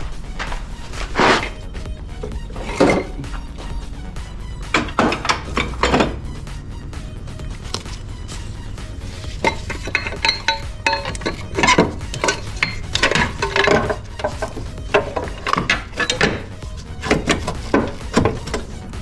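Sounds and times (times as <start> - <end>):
metal tools clinking: 2.2 - 3.6, 4.7 - 6.2, 9.0 - 19.0.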